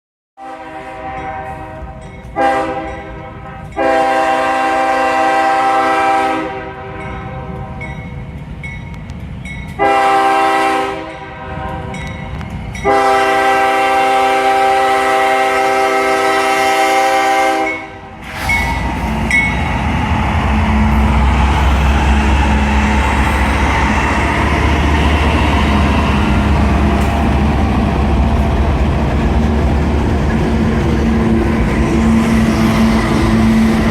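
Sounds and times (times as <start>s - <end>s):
locomotive air horn blasts: 0.4s - 7.9s, 9.8s - 12.1s, 12.8s - 18.8s
locomotive rumbling past: 0.5s - 33.9s.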